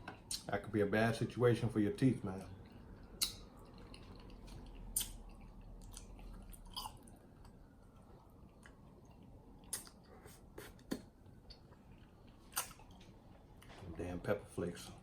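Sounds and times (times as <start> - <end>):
person chewing: 2.6 - 13.7.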